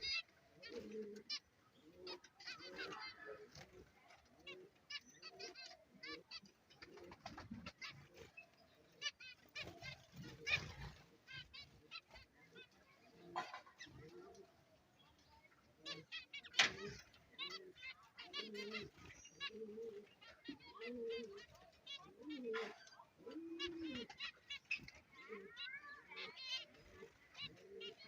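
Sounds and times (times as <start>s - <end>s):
finches chirping: 15.0s - 28.0s.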